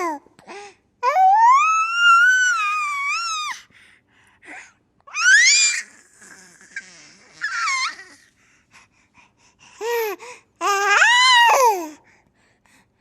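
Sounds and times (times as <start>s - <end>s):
baby squealing and laughing: 5.1s - 8.2s.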